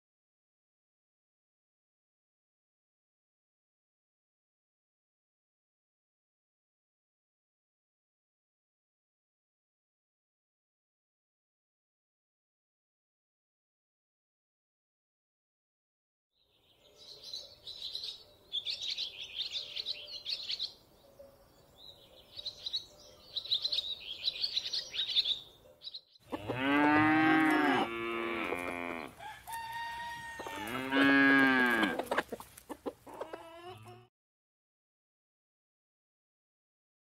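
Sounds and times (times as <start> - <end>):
high bird chirping: 16.5 - 26.2
cattle mooing: 26.3 - 29.2, 30.3 - 32.1, 33.5 - 34.1.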